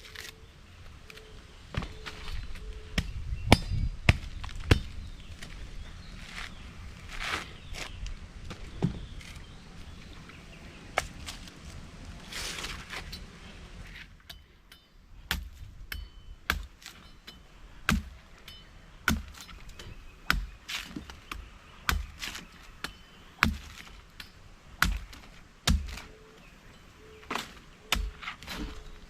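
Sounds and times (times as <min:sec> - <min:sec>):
machete chopping: 0:15.3 - 0:17.1, 0:17.9 - 0:26.1, 0:27.3 - 0:28.8.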